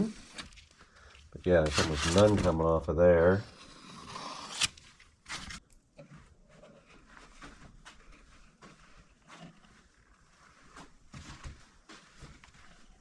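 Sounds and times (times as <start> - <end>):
scraper scraping countertop edge: 1.6 - 2.5.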